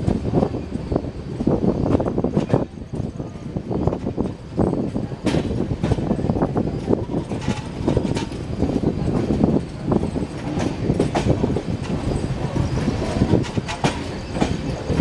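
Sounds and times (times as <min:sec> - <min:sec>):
train wheel rumble: 0:00.0 - 0:15.0
wheels clattering over rail joints: 0:00.0 - 0:15.0.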